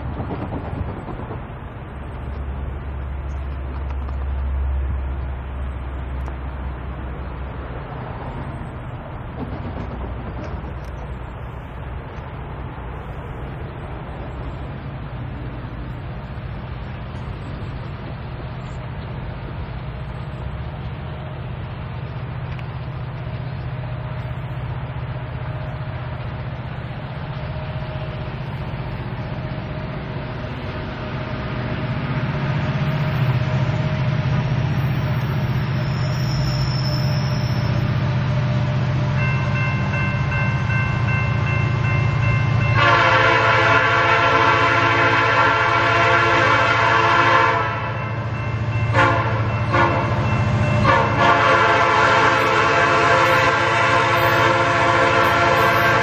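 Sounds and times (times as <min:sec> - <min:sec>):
diesel train low rumble: 0:00.0 - 0:56.0
locomotive air horn chord: 0:42.8 - 0:48.1, 0:48.9 - 0:56.0.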